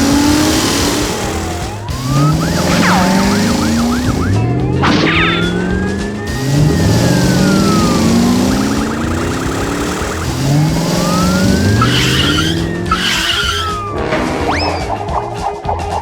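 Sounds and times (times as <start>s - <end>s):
police siren wailing: 0.0s - 14.8s
cartoon engines revving: 0.0s - 15.1s
background music with whistle glides: 0.0s - 16.0s
tyre screeches: 11.7s - 13.9s.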